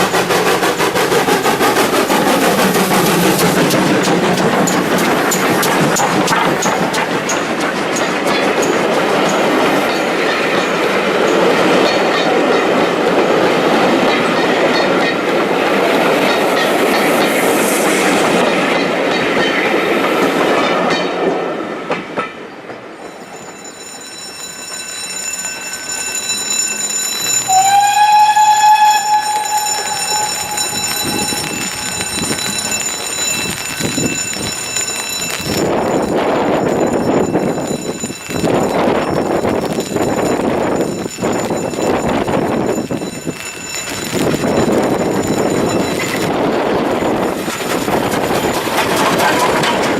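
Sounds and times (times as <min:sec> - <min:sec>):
steam train running past: 0:00.0 - 0:49.9
steam locomotive whistle: 0:27.4 - 0:32.8.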